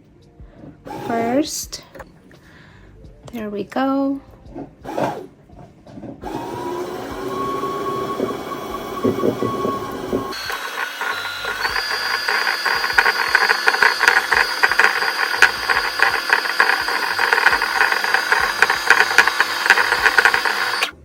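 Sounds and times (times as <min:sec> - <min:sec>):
sewing machine motor whine: 0:00.9 - 0:01.5, 0:04.9 - 0:05.3, 0:06.2 - 0:21.0.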